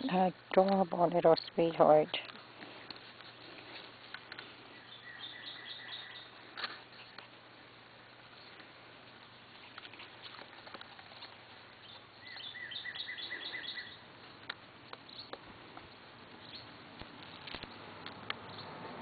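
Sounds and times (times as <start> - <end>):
rustling of dry grass and leaves: 0.0 - 18.6
bird chirps: 4.7 - 6.4, 11.8 - 14.0, 16.4 - 16.8.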